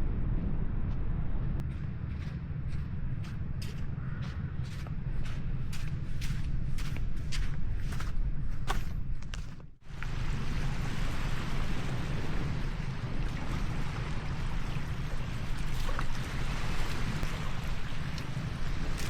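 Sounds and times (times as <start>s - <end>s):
low wind rumble: 0.0s - 19.0s
ocean waves washing on beach: 9.9s - 19.0s.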